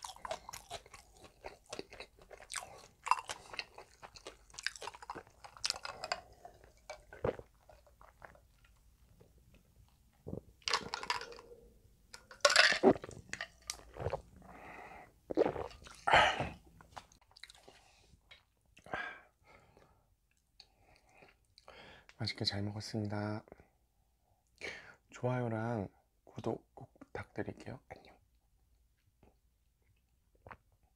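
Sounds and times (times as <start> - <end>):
gulping or sipping: 0.0 - 8.4, 12.7 - 14.7, 15.3 - 17.6
person chewing with wet clicks: 0.0 - 8.8, 16.8 - 17.8.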